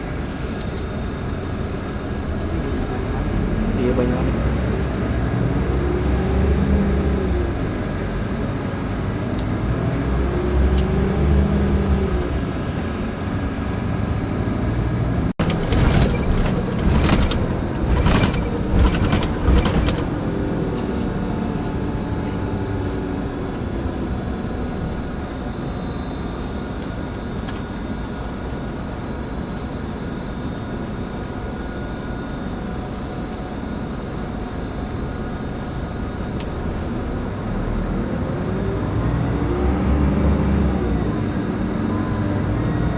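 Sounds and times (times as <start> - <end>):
coach diesel engine running: 0.0 - 26.4
clattering and knocking: 15.4 - 21.2.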